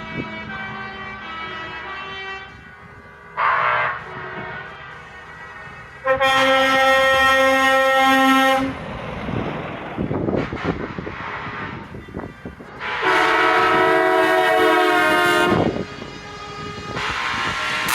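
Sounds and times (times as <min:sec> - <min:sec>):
passing truck engines: 0:00.0 - 0:17.9
truck air horn blasts: 0:03.4 - 0:05.2, 0:06.0 - 0:08.8, 0:10.5 - 0:15.8, 0:16.8 - 0:17.9.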